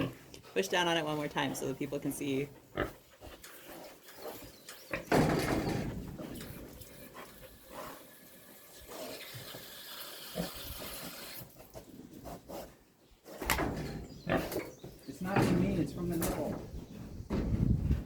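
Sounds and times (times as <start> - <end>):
pig grunting and snuffling: 0.0 - 14.9
water spraying from nipple: 6.7 - 11.6.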